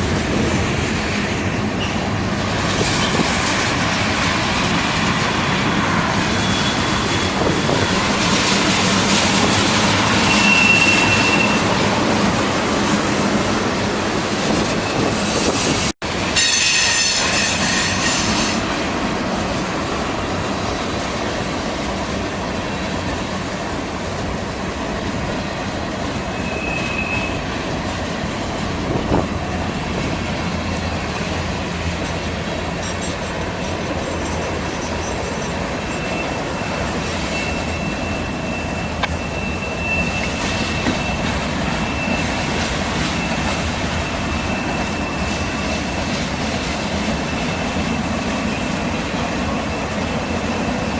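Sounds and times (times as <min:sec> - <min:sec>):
freight train wheels rumbling: 0:00.0 - 0:50.9
high wheel squeal: 0:05.1 - 0:13.2, 0:14.4 - 0:18.8, 0:26.3 - 0:27.7, 0:28.9 - 0:50.9.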